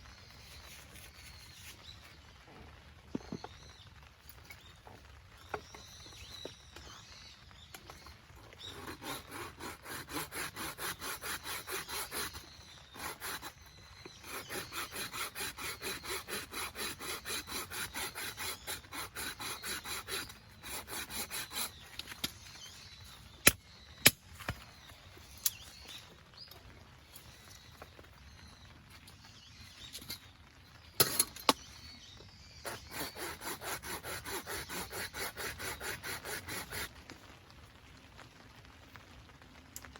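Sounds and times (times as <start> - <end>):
hand saw cutting wood: 8.6 - 22.3, 32.6 - 36.9.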